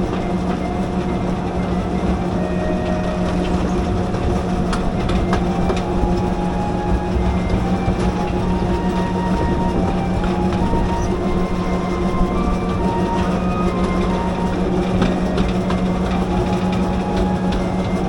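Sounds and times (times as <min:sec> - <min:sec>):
train engine drone: 0:00.0 - 0:18.0
wheels clicking over rail joints: 0:00.0 - 0:18.0.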